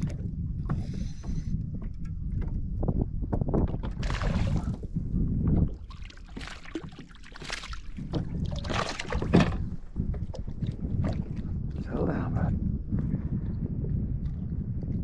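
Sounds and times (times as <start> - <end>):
water splashing around kayak: 0.0 - 12.0
wind rumbling on microphone: 0.0 - 15.0.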